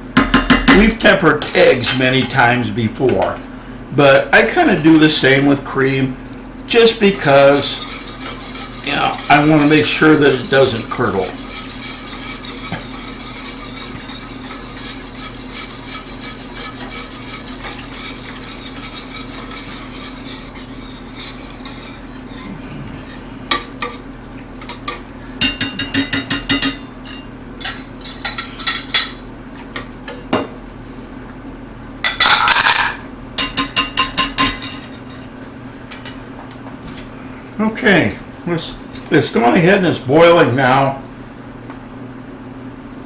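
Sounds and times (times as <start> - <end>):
steady low hum: 0.0 - 43.0
metal utensil clinking on a bowl: 1.4 - 2.4, 24.6 - 29.2.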